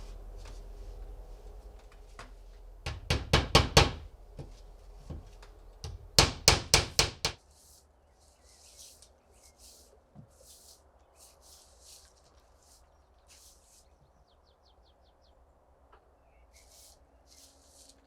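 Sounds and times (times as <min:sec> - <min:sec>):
hammer striking wood: 0:02.8 - 0:07.4.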